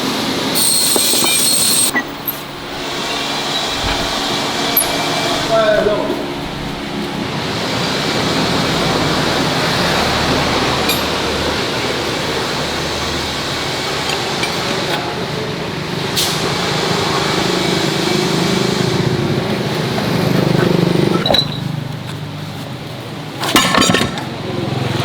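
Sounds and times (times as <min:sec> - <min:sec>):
mechanical running noise: 0:00.6 - 0:14.6.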